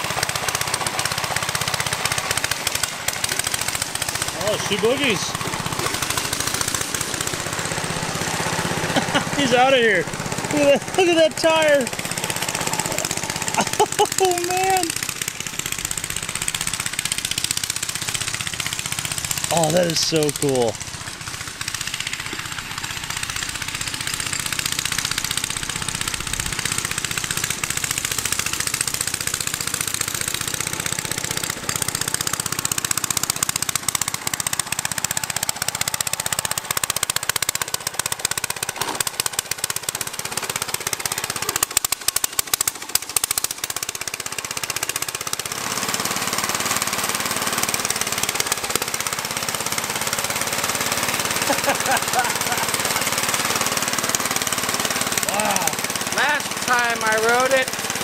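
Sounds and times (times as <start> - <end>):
small gasoline engine running: 0.0 - 58.0.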